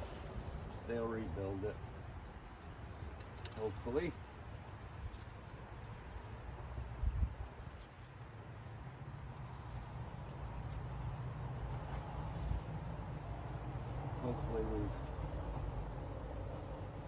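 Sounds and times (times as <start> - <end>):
low rumbling noise: 0.0 - 3.2
small birds chirping: 0.0 - 8.2, 8.8 - 17.0.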